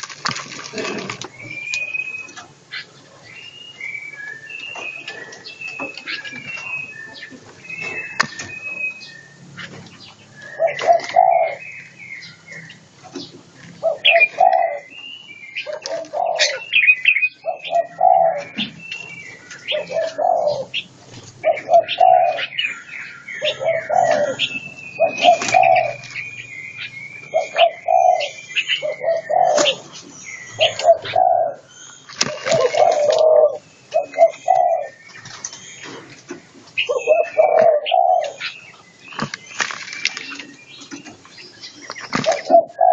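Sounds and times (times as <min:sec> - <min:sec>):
doves cooing: 0:00.0 - 0:42.9
songbirds chirping and whistling: 0:00.0 - 0:42.9.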